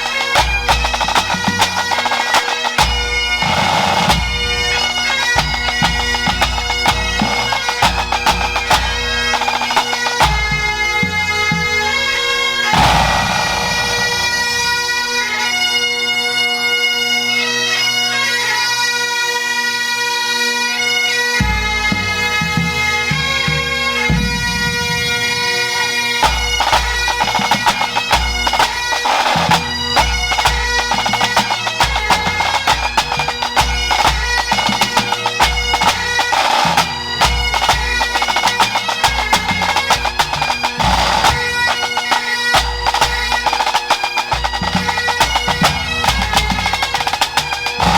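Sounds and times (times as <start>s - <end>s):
snare drum rolls: 0.0s - 4.3s, 12.7s - 14.9s, 26.2s - 47.9s
bagpipes playing a tune: 0.0s - 47.9s.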